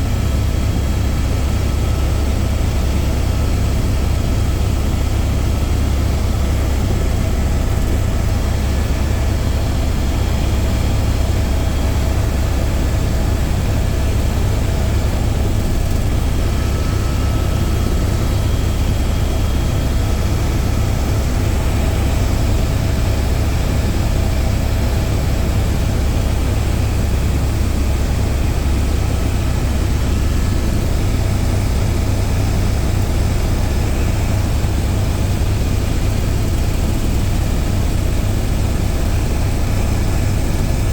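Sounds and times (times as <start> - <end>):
helicopter engine and rotor noise: 0.0 - 40.9.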